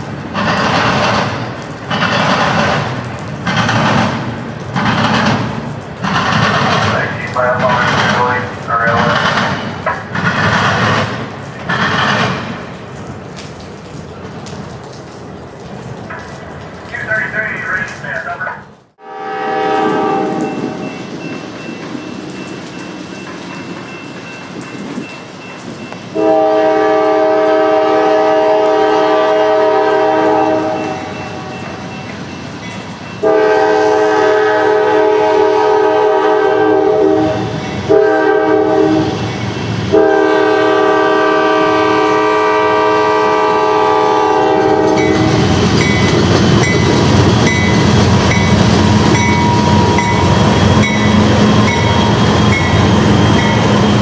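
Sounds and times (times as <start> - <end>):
train rumble and wheel clatter: 0.0 - 54.0
locomotive air horn: 19.0 - 20.8, 26.2 - 31.5, 33.2 - 39.3, 39.9 - 45.4.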